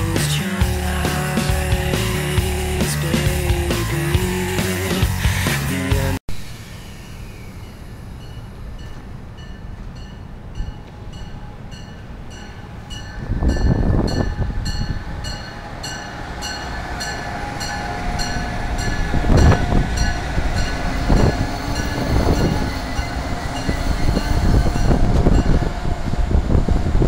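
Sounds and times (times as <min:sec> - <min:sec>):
electric train passing: 0:00.0 - 0:27.0
bell ringing: 0:07.6 - 0:25.7.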